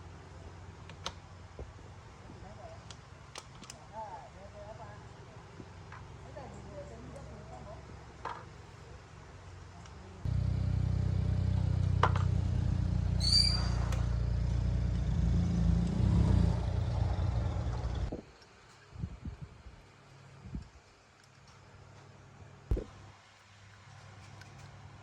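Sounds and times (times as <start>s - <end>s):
brief high squeal: 13.2s - 14.0s.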